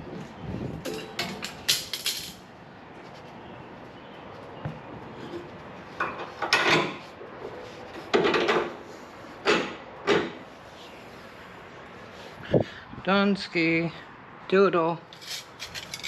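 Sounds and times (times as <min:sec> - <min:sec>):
tools clunking and scraping: 0:00.8 - 0:02.4, 0:04.6 - 0:08.8, 0:09.4 - 0:10.4, 0:15.1 - 0:16.0.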